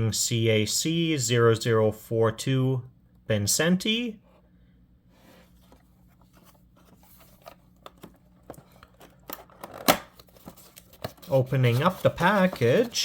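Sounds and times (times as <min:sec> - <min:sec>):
packaging clicks and crinkles: 0:06.2 - 0:13.0.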